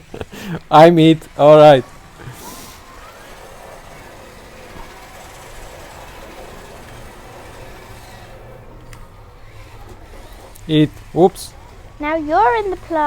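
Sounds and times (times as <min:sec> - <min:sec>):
electric motor whir: 0:01.1 - 0:13.0.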